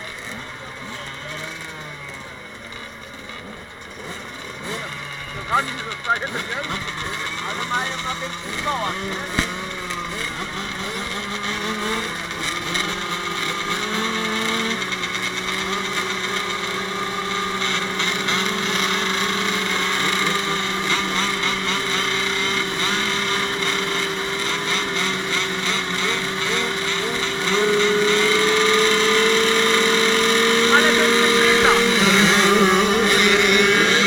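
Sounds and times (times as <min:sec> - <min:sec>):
motocross bikes revving: 0:00.0 - 0:34.0.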